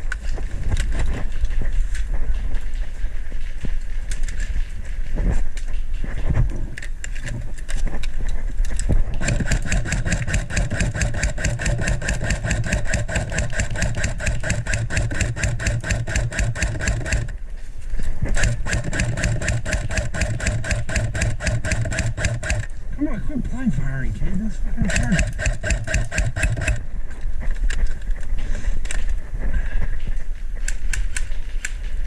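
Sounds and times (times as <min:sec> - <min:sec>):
airsoft gun firing full auto: 0:09.2 - 0:17.4, 0:18.4 - 0:22.7, 0:24.9 - 0:26.8.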